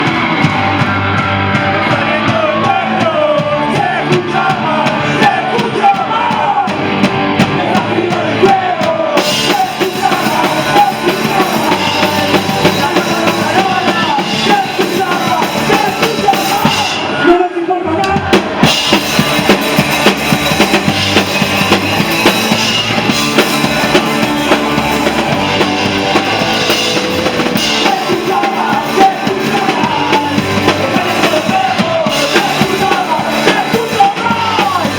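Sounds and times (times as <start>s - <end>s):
drum kit: 0.0s - 17.2s, 18.0s - 34.9s
punk rock band playing: 0.0s - 34.9s.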